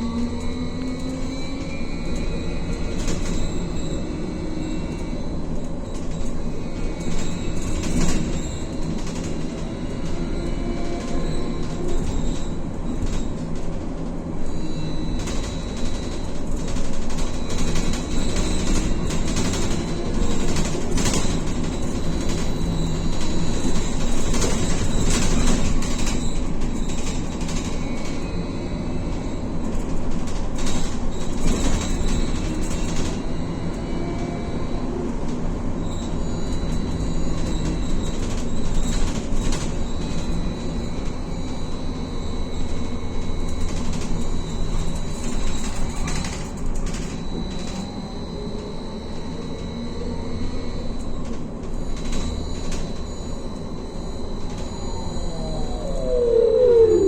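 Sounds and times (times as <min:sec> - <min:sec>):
rolling rumble: 0:54.5 - 0:57.0
electric motor whine: 0:54.6 - 0:57.0.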